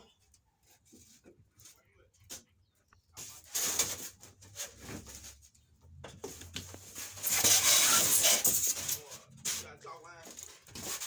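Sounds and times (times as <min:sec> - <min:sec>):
styrofoam squeaking and scraping: 0:06.8 - 0:11.0.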